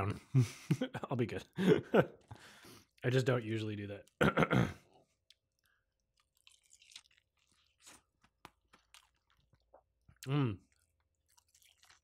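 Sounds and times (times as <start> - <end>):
faint chewing: 2.2 - 4.3, 4.9 - 12.0.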